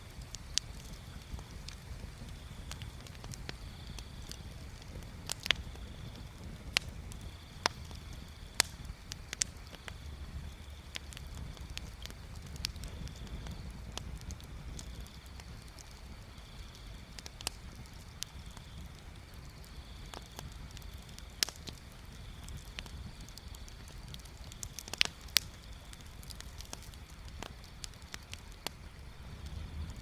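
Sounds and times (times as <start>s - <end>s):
bonfire crackling and popping: 0.0s - 30.0s.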